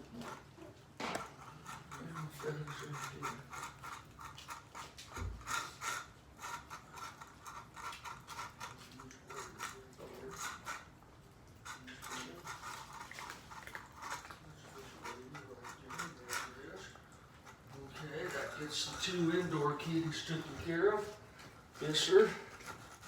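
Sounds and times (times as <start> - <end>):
cats crunching dry food: 0.0 - 23.0.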